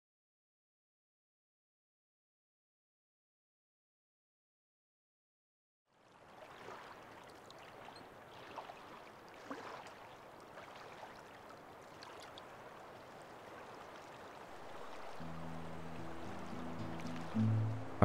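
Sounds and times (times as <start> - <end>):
water trickling over sand: 6.0 - 15.4.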